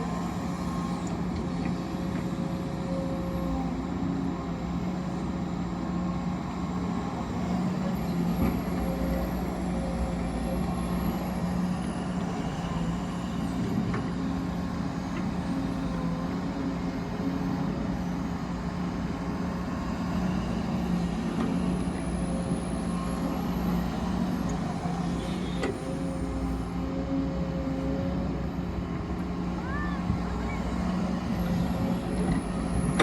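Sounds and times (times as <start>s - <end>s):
vehicle machinery drone: 0.0s - 33.0s.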